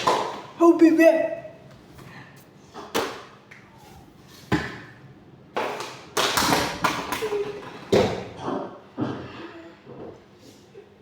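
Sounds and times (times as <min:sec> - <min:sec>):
objects knocking and clattering: 0:05.6 - 0:10.3.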